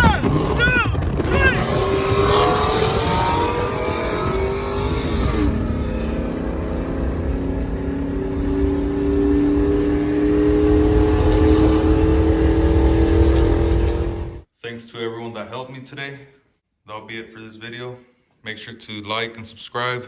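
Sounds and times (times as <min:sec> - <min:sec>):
vehicle engine accelerating: 0:00.2 - 0:14.4.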